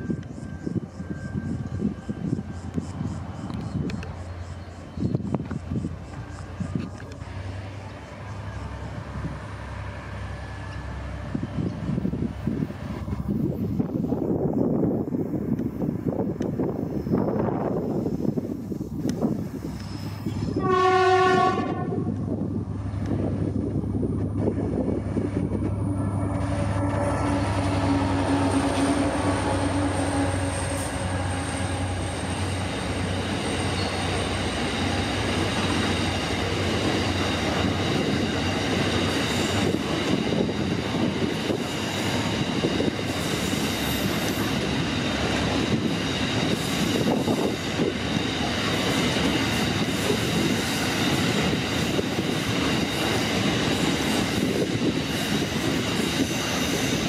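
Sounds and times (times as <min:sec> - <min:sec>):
locomotive engines humming: 0:00.0 - 0:57.0
wheels squealing: 0:25.2 - 0:57.0.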